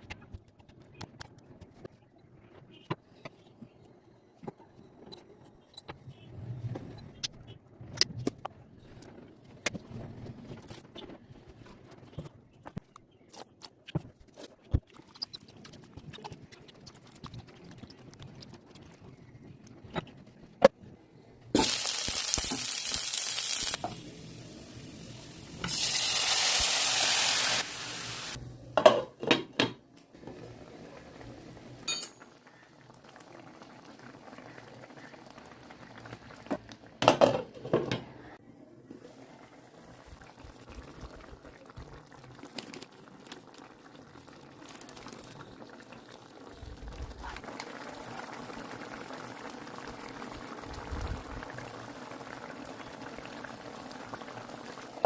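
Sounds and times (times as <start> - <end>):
sizzling frying: 21.5 - 28.4, 39.2 - 55.0
bubbling simmer: 30.2 - 37.6, 39.0 - 55.0.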